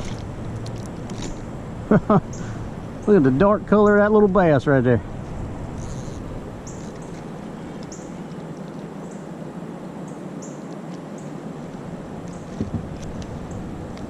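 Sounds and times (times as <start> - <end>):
steady outdoor hiss: 0.0 - 14.0
small bird chirping: 5.8 - 8.4.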